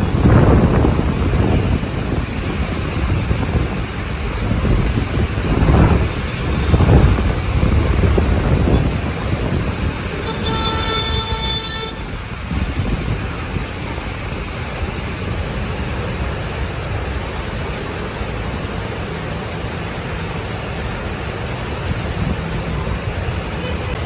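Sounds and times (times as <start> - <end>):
wind buffeting microphone: 0.0 - 24.0
horn-like tone: 10.2 - 12.1.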